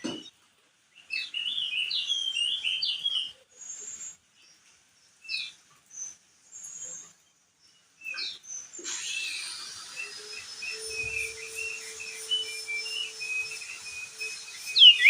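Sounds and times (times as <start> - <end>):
bird singing chattering notes: 10.5 - 15.0.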